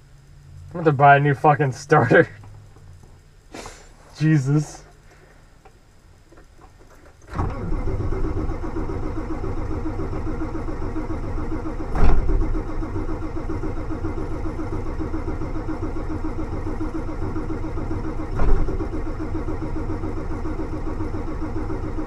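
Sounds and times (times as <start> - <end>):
diesel engine cranking: 6.4 - 22.0.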